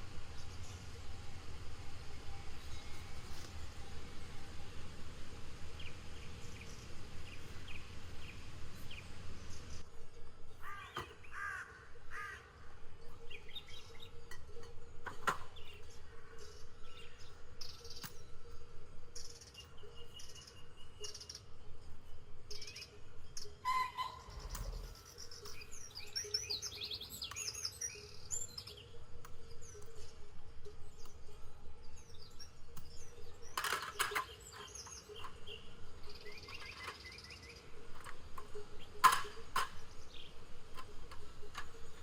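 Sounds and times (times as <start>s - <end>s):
background hiss: 0.0s - 14.1s
forest birds calling: 0.0s - 42.0s.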